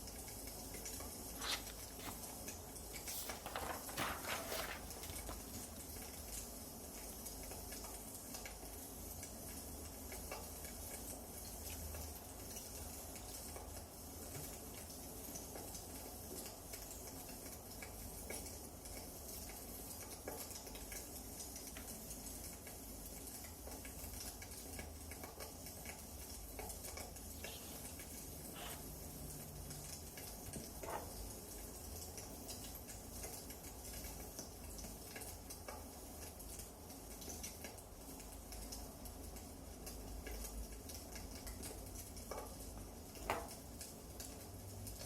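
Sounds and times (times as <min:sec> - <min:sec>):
fire hissing softly: 0:00.0 - 0:44.5
wood fire crackling: 0:01.2 - 0:06.6.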